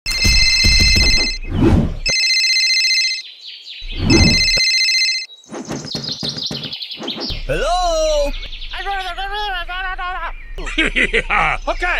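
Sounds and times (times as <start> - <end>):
telephone ringing: 0.1 - 1.4, 2.1 - 3.2, 4.1 - 5.3
bird chirps: 3.0 - 11.9.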